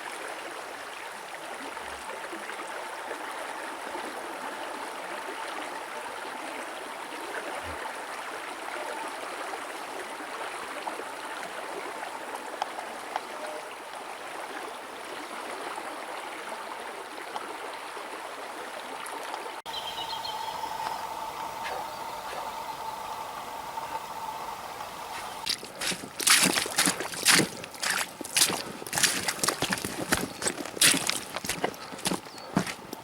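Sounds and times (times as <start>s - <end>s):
stream water rushing: 19.7s - 33.0s.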